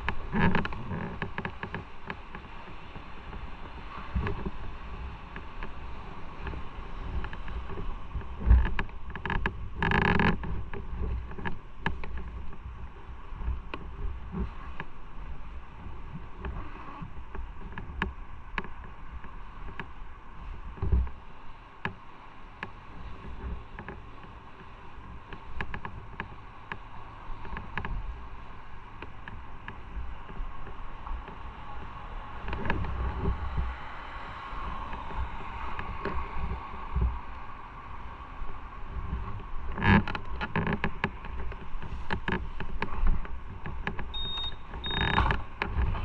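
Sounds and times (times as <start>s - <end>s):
small ticks: 0.0s - 2.8s, 7.2s - 12.6s, 22.6s - 28.2s, 39.4s - 45.8s
road noise: 0.0s - 46.0s
wind buffeting microphone: 0.0s - 46.0s.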